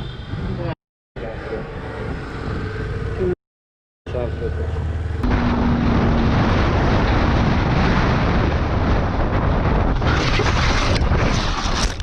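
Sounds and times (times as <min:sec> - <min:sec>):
wind and road noise: 0:00.0 - 0:03.4, 0:04.1 - 0:12.0
wind buffeting microphone: 0:05.2 - 0:12.0.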